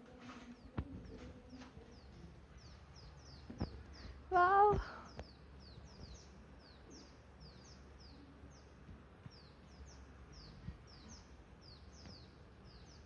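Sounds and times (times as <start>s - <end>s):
low steady hum: 0.0s - 13.0s
faint bird chirps: 0.2s - 13.0s.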